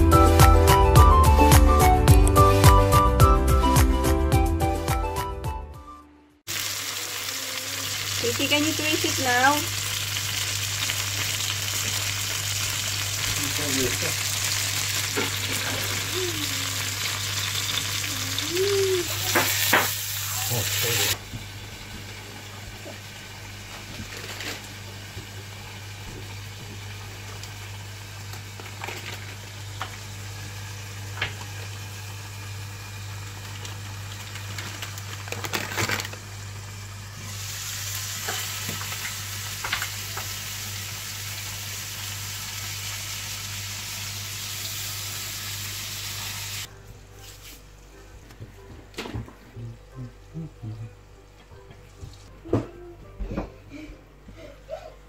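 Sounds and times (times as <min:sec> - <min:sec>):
patty sizzling in a pan: 0:06.5 - 0:47.6.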